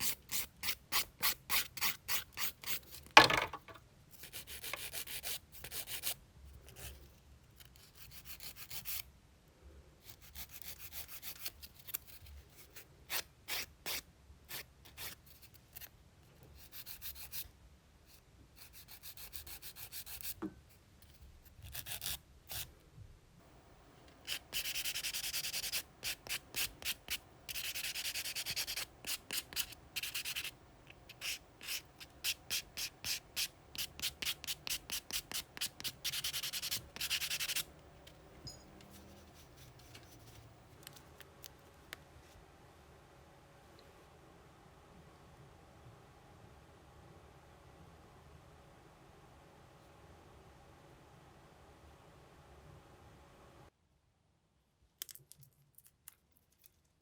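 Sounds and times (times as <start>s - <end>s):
nail file rubbing fingernails: 4.2s - 9.0s, 10.0s - 15.9s, 16.6s - 17.5s, 18.6s - 20.4s, 21.0s - 22.7s, 24.1s - 38.2s.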